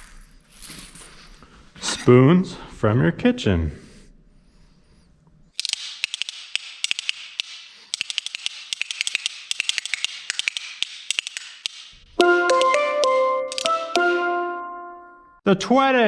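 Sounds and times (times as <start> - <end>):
spoons clacking rhythmically: 5.6 - 14.3
ringing pitched instrument: 12.2 - 15.4.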